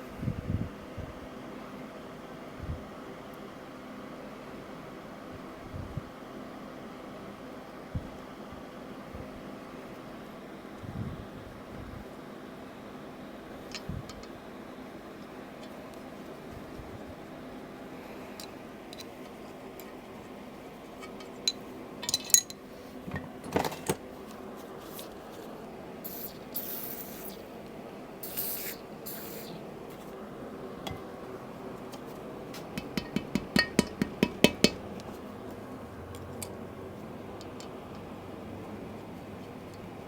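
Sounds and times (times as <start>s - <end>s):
steady background hum: 0.0s - 40.0s
metal tools clinking and knocking: 21.0s - 24.0s
short hisses: 26.1s - 27.6s, 28.2s - 29.7s.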